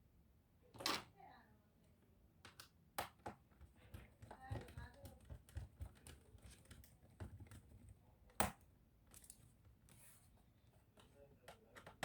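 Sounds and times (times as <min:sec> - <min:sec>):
small clicks and handling noises: 0:02.4 - 0:10.0, 0:10.7 - 0:12.0.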